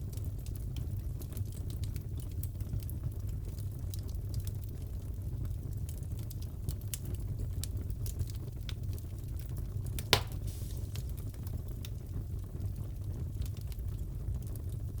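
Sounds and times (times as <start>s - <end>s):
fire rumble: 0.0s - 15.0s
wood fire crackling: 0.0s - 15.0s
loud pop: 10.0s - 11.0s.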